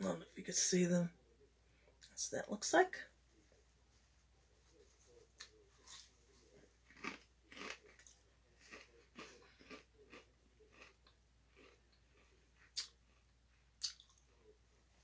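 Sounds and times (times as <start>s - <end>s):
potato chips being chewed: 5.4s - 14.5s.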